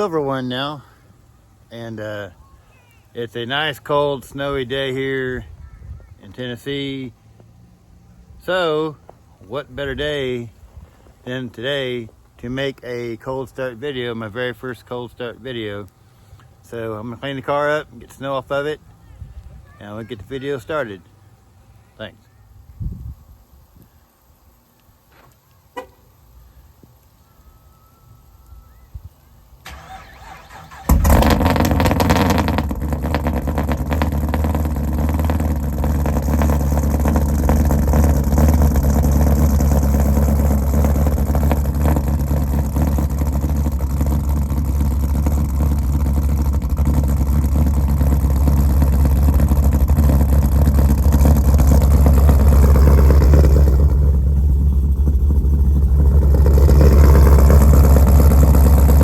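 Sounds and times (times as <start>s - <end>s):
car engine starting and idling: 29.6s - 59.0s.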